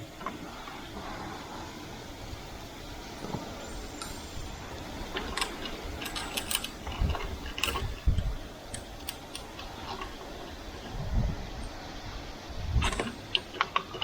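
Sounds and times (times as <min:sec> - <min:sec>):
steady hiss: 0:00.0 - 0:14.0
light metallic clicks and ticks: 0:05.1 - 0:11.0.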